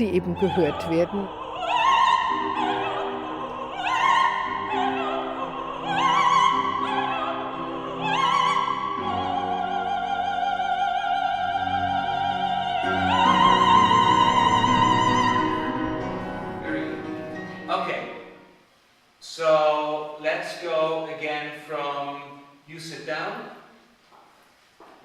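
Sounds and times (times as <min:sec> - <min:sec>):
operatic singing with vibrato: 0:00.0 - 0:18.6.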